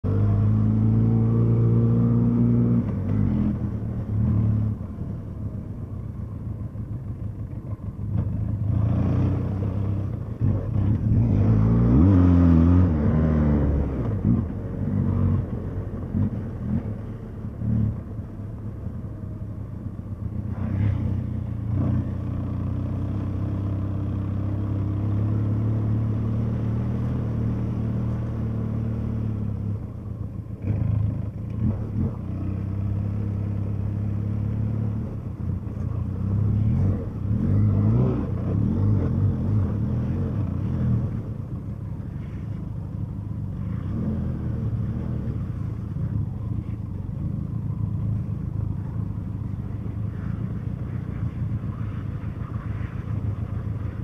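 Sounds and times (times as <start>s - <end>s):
motorcycle engine revving: 8.0s - 18.0s.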